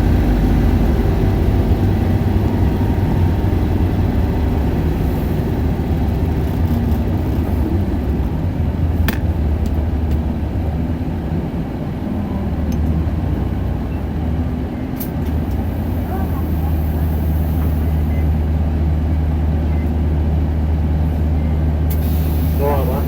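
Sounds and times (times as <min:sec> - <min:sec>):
bus diesel engine running: 0:00.0 - 0:23.0
road noise: 0:00.0 - 0:23.0.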